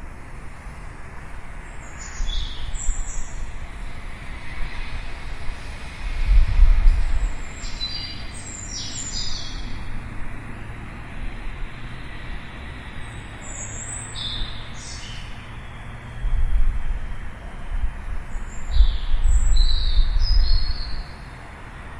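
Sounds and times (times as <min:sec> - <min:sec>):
distant city traffic hum: 0:00.0 - 0:21.9
small birds chirping: 0:07.2 - 0:09.8, 0:13.0 - 0:15.7.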